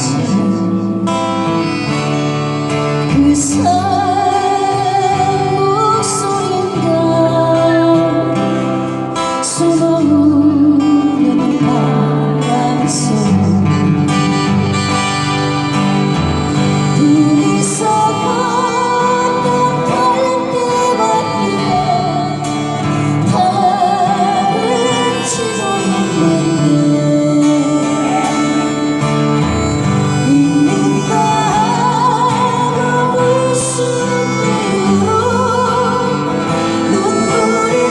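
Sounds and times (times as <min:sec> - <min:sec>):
acoustic guitar: 0:00.0 - 0:37.9
people singing a folk ballad: 0:16.9 - 0:37.9.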